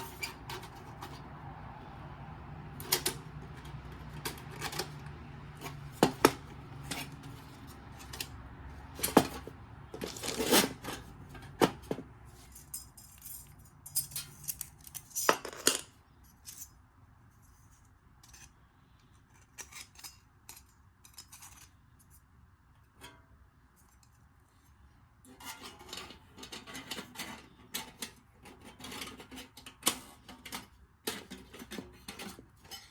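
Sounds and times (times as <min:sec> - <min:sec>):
metal camping gear clinking: 0:08.9 - 0:16.6.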